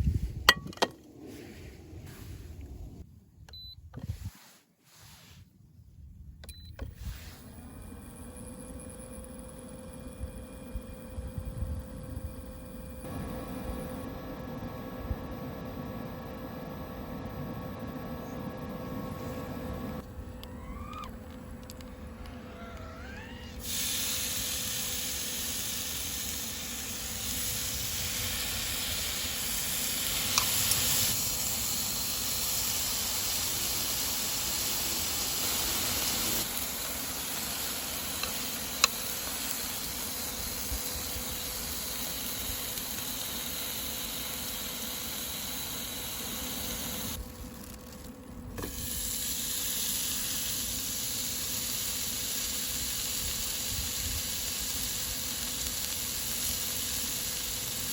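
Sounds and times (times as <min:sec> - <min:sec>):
meat sizzling on a grill: 0:23.6 - 0:46.9, 0:48.8 - 0:57.9.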